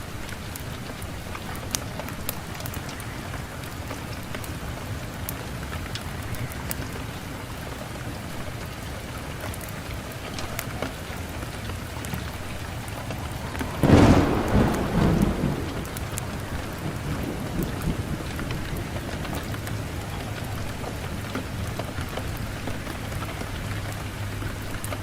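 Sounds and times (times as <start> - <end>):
wood fire crackling: 0.0 - 25.0
fire low rumbling burst: 11.8 - 21.1.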